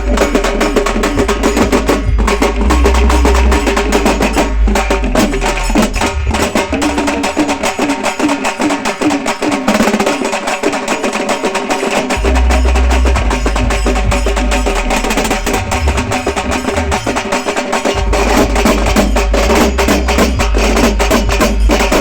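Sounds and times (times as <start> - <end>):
deep bass: 0.0 - 7.2, 12.2 - 17.3, 18.0 - 22.0
frame drums played fast: 0.0 - 22.0.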